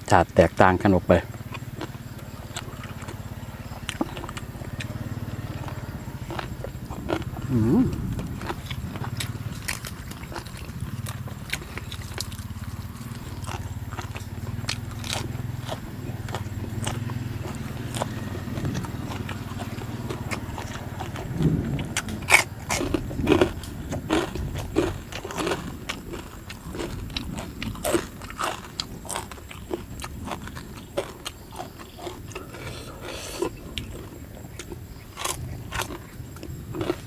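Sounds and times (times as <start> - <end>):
low hum: 1.3 - 24.5
person chewing crunchy food: 1.4 - 37.0.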